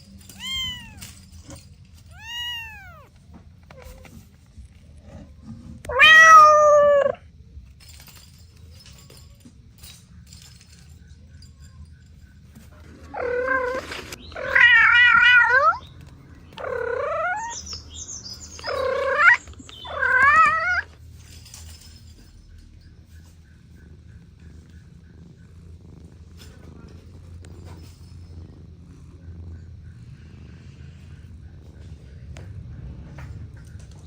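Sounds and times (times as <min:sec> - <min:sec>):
cat meowing: 0:00.3 - 0:03.2, 0:05.9 - 0:07.2, 0:14.4 - 0:15.8, 0:16.6 - 0:17.6, 0:18.6 - 0:20.9.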